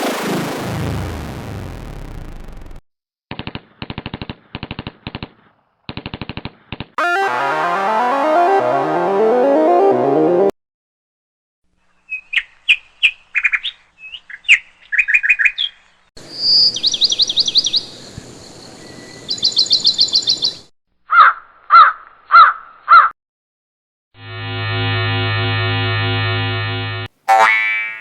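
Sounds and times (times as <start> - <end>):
quick high bird chirps: 12.1 - 17.9
trilled bird notes: 27.3 - 28.0.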